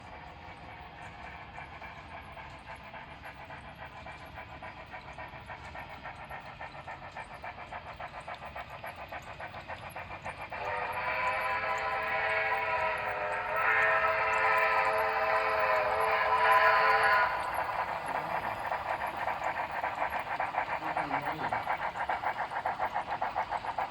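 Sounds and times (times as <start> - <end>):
steam locomotive chuffing: 0.0 - 23.9
steam whistle: 10.5 - 18.5.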